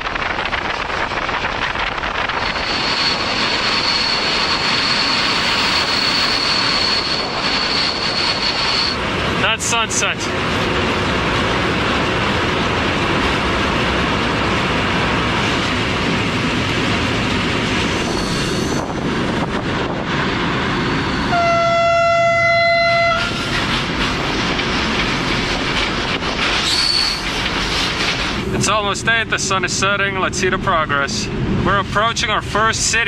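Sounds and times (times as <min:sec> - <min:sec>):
train wheel and wind rush: 0:00.0 - 0:33.0
train horn blast: 0:21.3 - 0:23.4.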